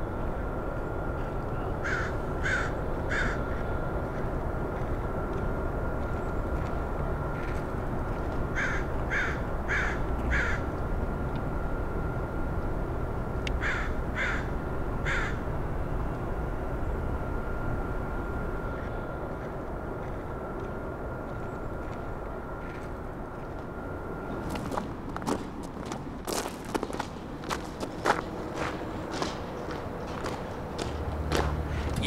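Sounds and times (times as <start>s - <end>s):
low outdoor rumble: 0.0s - 32.0s.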